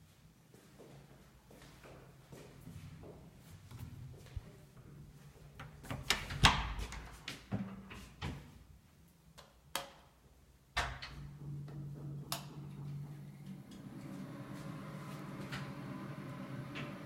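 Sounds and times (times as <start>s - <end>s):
low steady hum: 10.4s - 17.0s.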